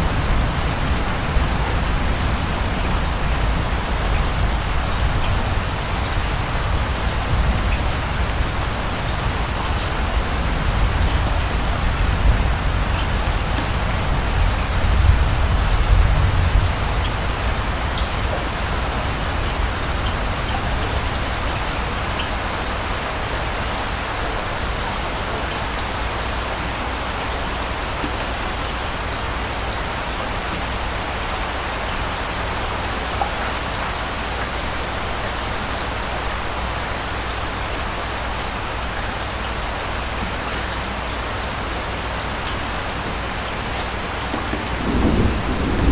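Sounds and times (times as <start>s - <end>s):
rain falling: 0.0s - 45.9s
distant thunder rumble: 44.0s - 45.9s.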